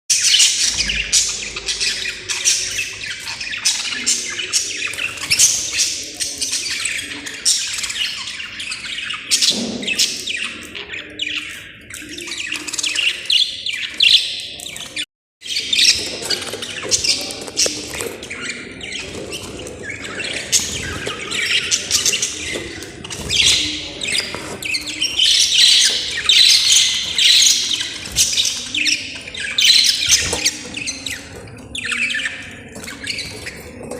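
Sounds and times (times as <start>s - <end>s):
budgerigars chattering: 0.1s - 33.9s.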